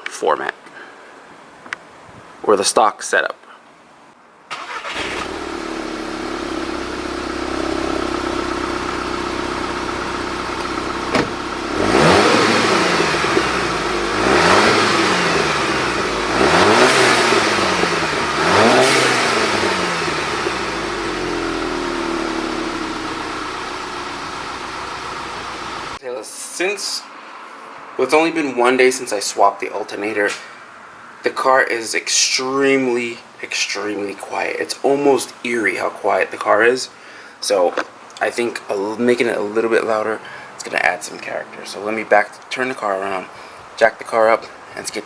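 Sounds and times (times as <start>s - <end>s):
car engine idling and revving: 4.7s - 26.0s.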